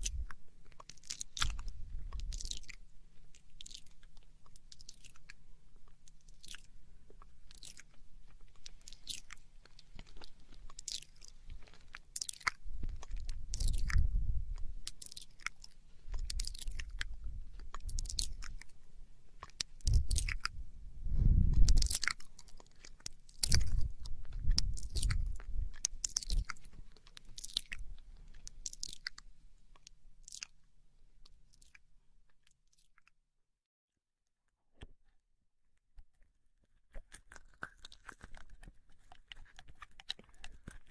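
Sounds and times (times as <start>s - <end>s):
wet mouth clicks and lip smacks: 0.0s - 18.7s, 19.4s - 20.6s, 21.5s - 29.2s, 29.8s - 30.6s, 36.9s - 40.9s
low muffled sound against microphone: 19.8s - 21.8s.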